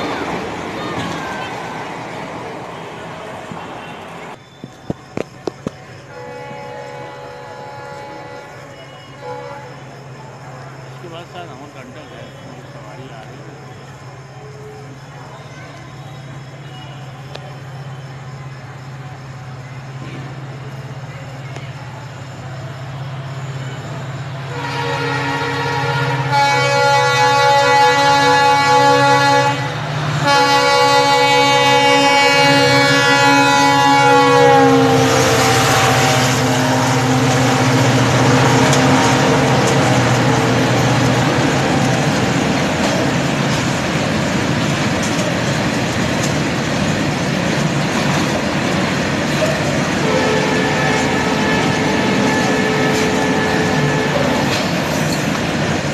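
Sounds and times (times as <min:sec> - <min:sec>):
train wheels on rail: 0:00.0 - 0:55.9
locomotive horn blasts: 0:06.1 - 0:09.8, 0:24.4 - 0:41.9, 0:50.0 - 0:54.8.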